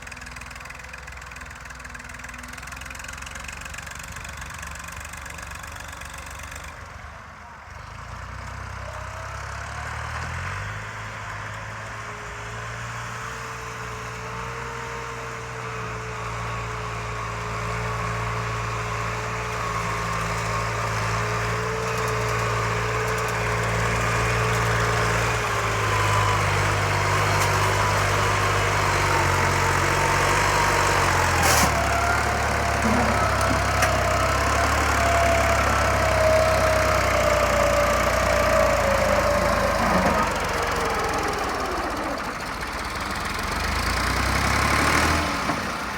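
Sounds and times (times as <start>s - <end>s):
tractor engine labouring: 11.6s - 45.9s.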